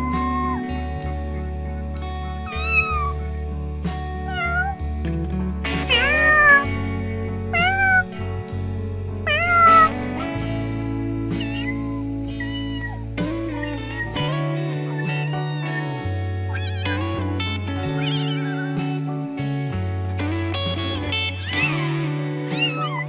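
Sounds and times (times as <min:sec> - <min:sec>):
cats meowing: 0:00.0 - 0:00.7, 0:02.5 - 0:03.3, 0:04.3 - 0:04.8, 0:05.9 - 0:06.8, 0:07.6 - 0:08.2, 0:09.3 - 0:10.1, 0:21.4 - 0:23.0
background music: 0:00.0 - 0:23.0.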